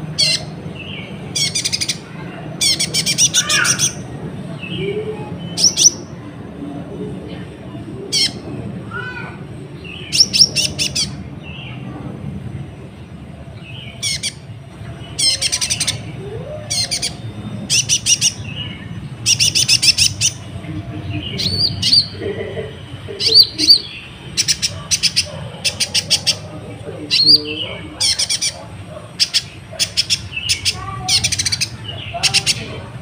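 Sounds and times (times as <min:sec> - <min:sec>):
sunbird trilling: 0:00.0 - 0:04.1, 0:04.7 - 0:06.1, 0:08.1 - 0:08.4, 0:09.9 - 0:11.2, 0:13.7 - 0:22.4, 0:23.1 - 0:32.9.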